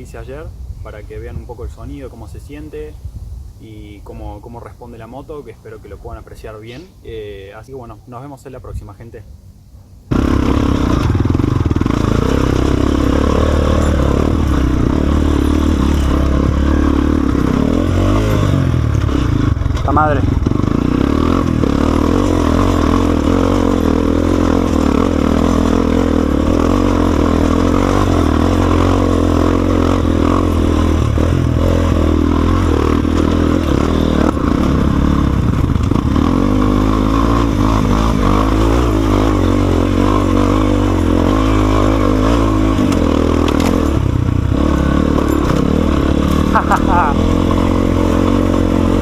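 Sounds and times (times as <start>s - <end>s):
motorcycle engine revving: 10.0s - 49.0s.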